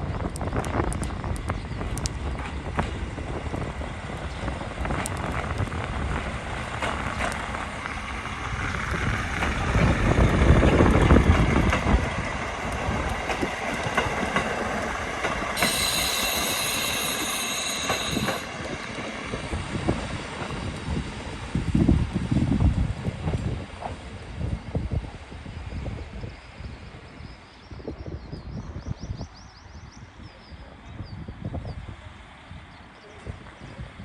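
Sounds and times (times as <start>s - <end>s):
diesel railcar rumbling over rails: 0.0s - 27.2s
high squeal of train brakes: 15.2s - 19.3s.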